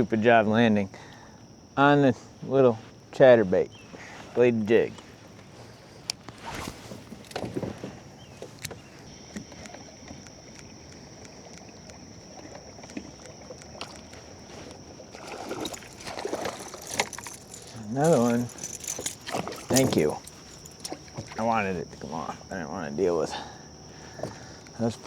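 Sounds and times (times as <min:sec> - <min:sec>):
water sloshing against hull: 0:03.7 - 0:22.5, 0:23.4 - 0:24.7
knocks and clicks of gear: 0:05.4 - 0:12.0, 0:15.6 - 0:21.4
thin steady high tone: 0:15.6 - 0:25.0.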